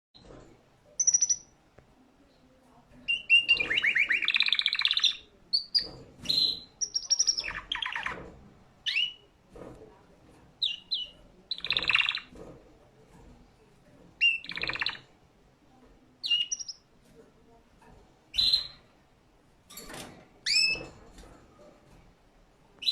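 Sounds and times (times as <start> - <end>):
canary singing: 1.0 - 1.6, 3.0 - 8.2, 8.8 - 9.3, 10.6 - 12.4, 14.2 - 15.1, 16.2 - 16.9, 18.3 - 18.8, 20.4 - 20.9.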